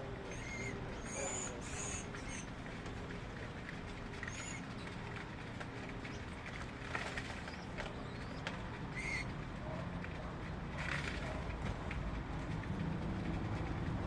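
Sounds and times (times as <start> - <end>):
bird chirps: 0.3 - 2.5, 7.5 - 8.4.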